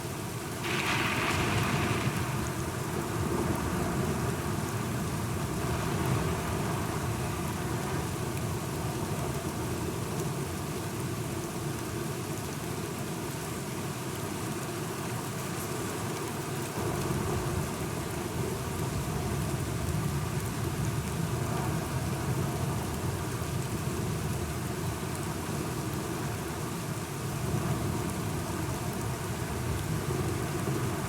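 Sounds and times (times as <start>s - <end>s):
steady rain falling: 0.0s - 31.0s
low rumble of thunder: 0.6s - 4.8s.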